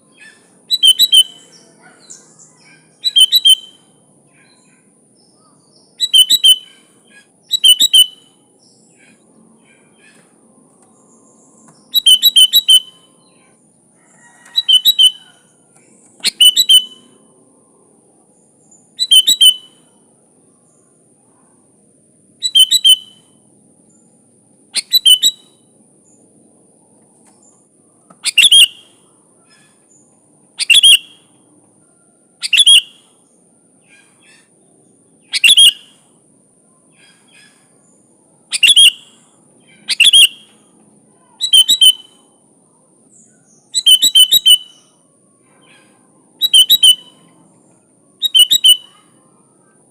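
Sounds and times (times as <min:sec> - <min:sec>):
bird calling in bubbly phrases: 0:28.2 - 0:29.0, 0:30.6 - 0:31.2, 0:41.4 - 0:42.1, 0:48.2 - 0:49.1.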